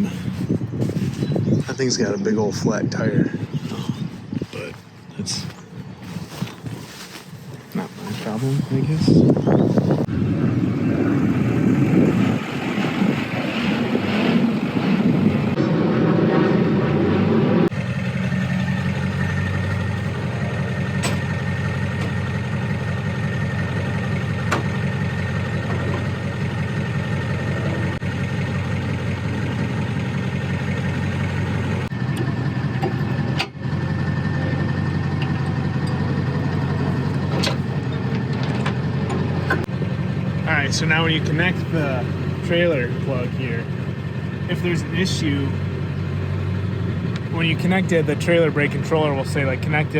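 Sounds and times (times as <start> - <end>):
vehicle engine idling: 17.6 - 49.9.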